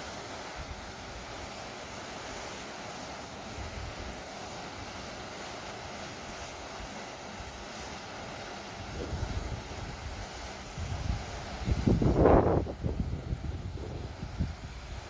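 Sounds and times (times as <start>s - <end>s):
surf washing on shore: 0.0s - 15.0s
wind rumbling on microphone: 8.8s - 15.0s.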